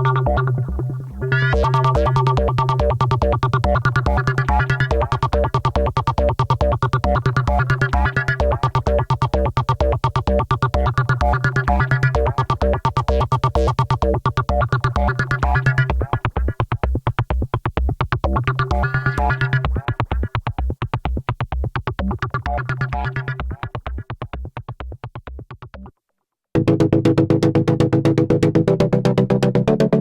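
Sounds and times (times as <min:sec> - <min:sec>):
sustained synth chord: 0:00.0 - 0:05.5
pulsing synth bass sequence: 0:00.0 - 0:25.9, 0:26.6 - 0:30.0.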